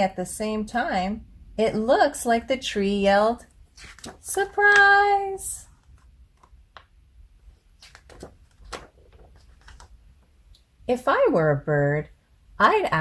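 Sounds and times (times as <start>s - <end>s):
book pages turning: 3.7s - 5.0s, 5.7s - 6.9s, 7.5s - 10.3s.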